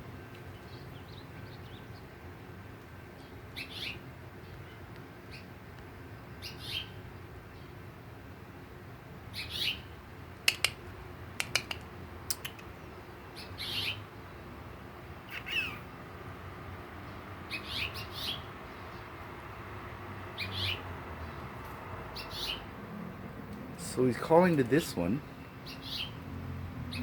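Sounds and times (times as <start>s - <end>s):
finches chirping: 3.6s - 5.5s, 12.9s - 14.0s, 15.2s - 15.9s, 17.1s - 19.2s, 20.4s - 21.4s, 22.1s - 22.7s, 25.2s - 26.2s
sharp clicks: 10.4s - 10.8s, 11.4s - 12.7s.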